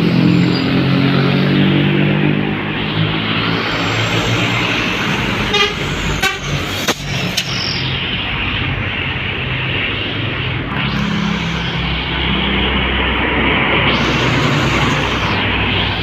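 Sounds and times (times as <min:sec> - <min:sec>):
heavy vehicle engine running: 0:00.0 - 0:16.0
road traffic passing: 0:00.0 - 0:16.0
horn toots: 0:05.4 - 0:06.6.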